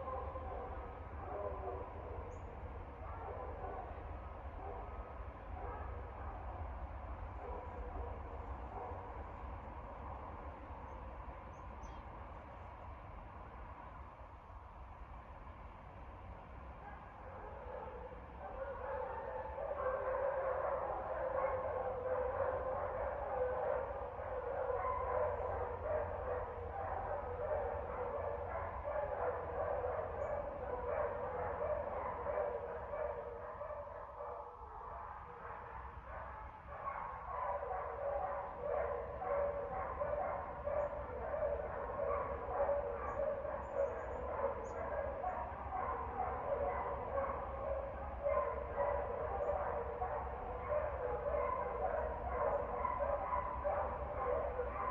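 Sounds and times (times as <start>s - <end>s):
dogs barking and yipping: 16.9s - 54.9s.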